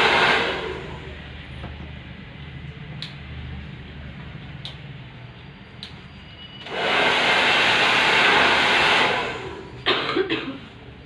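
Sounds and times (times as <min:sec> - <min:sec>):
hair dryer blowing: 0:00.0 - 0:01.2, 0:06.6 - 0:09.8
rough burst of noise: 0:00.0 - 0:01.3, 0:06.6 - 0:10.2.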